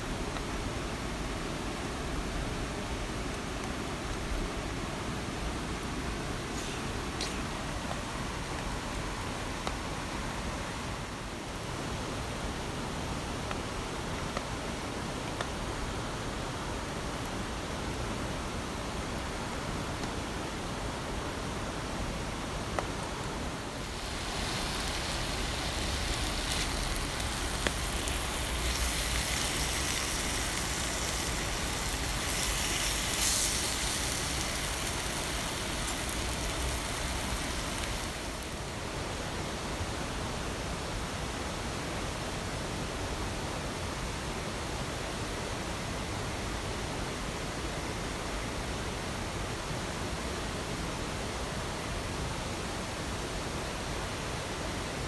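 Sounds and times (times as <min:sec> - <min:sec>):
heavy rain pouring: 0:23.5 - 0:38.8.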